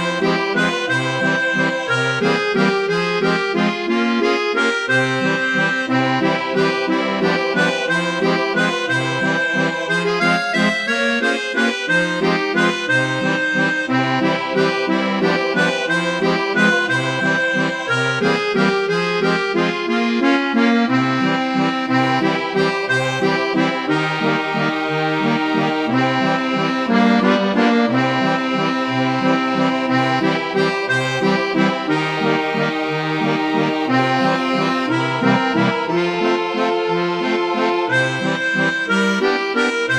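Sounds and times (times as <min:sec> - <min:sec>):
accordion playing a waltz: 0:00.0 - 0:39.9.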